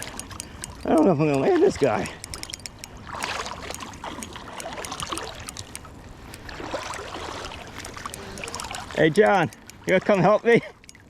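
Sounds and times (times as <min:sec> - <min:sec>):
river water splashing: 0:00.0 - 0:11.0
sharp clicks: 0:02.2 - 0:03.0, 0:03.6 - 0:07.0, 0:09.2 - 0:09.8.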